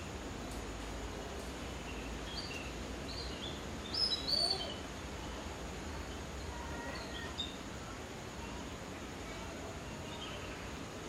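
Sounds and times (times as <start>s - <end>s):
background hiss: 0.0s - 11.0s
birds chirping: 1.6s - 7.8s.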